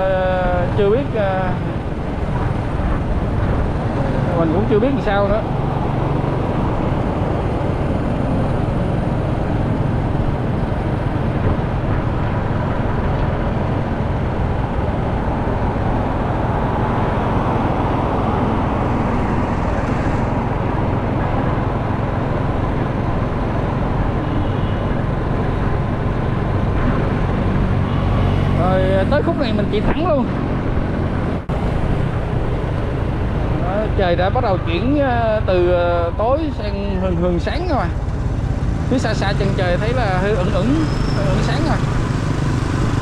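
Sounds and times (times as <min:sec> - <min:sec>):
road and wind noise: 0:00.0 - 0:43.0
motorcycle engine running: 0:36.7 - 0:43.0.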